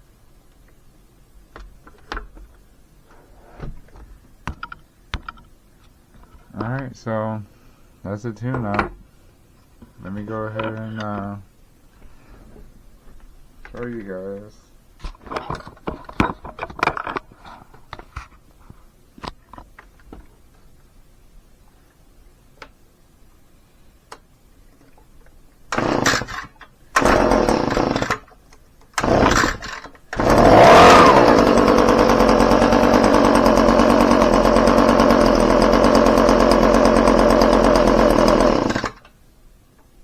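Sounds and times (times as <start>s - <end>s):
leaf blower engine running: 25.8s - 26.4s, 27.0s - 28.2s, 29.0s - 39.0s.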